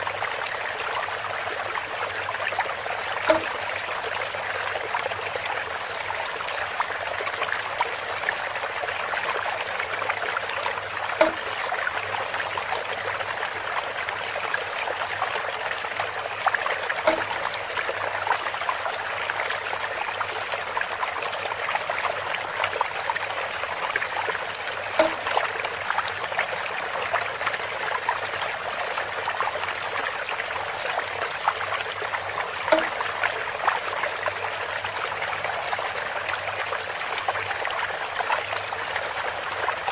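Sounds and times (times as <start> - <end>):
water pouring through bamboo spout: 0.0 - 39.9
hollow pitched knock: 3.3 - 3.6, 11.2 - 11.5, 17.1 - 17.4, 25.0 - 25.4.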